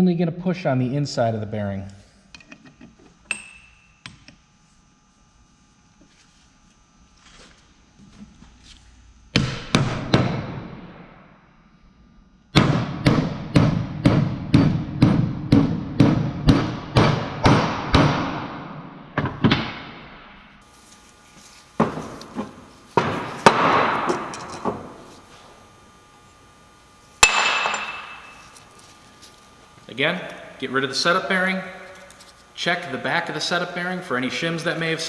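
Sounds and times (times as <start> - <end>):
hammer striking metal socket: 27.2 - 28.6.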